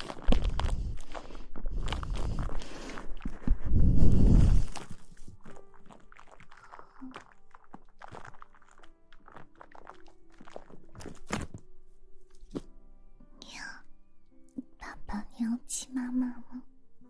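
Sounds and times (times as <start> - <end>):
close rustling and crackling: 0.0 - 11.7
faint background music: 0.0 - 17.0.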